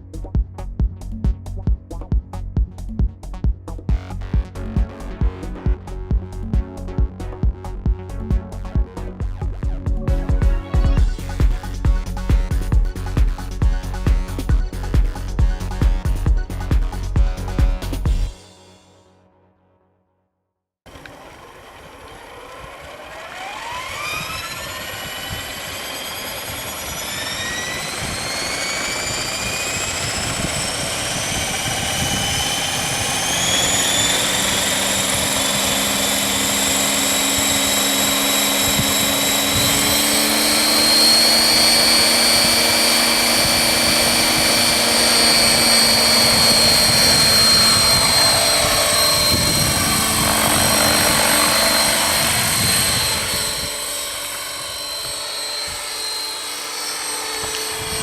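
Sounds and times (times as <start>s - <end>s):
rc helicopter motor whine: 10.0s - 15.8s, 20.9s - 58.0s
rotor noise: 20.9s - 58.0s.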